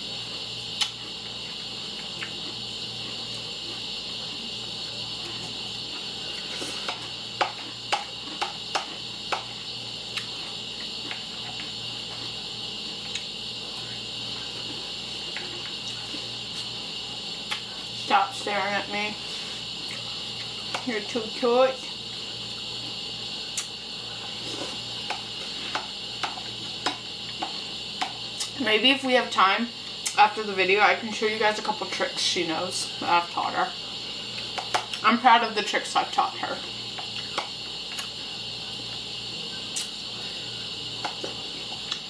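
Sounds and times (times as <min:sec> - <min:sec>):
steady high-pitched buzz: 0:00.0 - 0:42.0
cereal eating clicks: 0:00.8 - 0:01.0, 0:17.4 - 0:17.7, 0:23.6 - 0:23.8, 0:34.3 - 0:35.0, 0:37.0 - 0:38.2, 0:39.7 - 0:40.0, 0:41.0 - 0:42.0.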